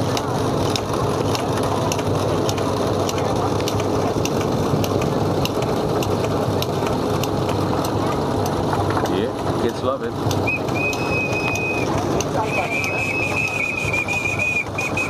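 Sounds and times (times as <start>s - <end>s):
model steam engines clattering: 0.0s - 15.0s
sharp ticking: 10.2s - 15.0s.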